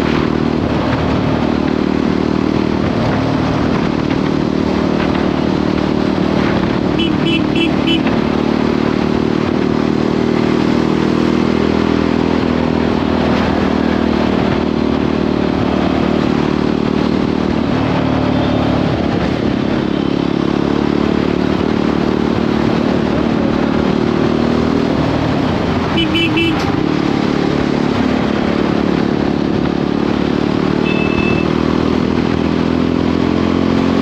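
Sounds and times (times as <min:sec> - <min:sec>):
motorcycle engine running: 0:00.0 - 0:34.0
wind and road noise: 0:00.0 - 0:34.0.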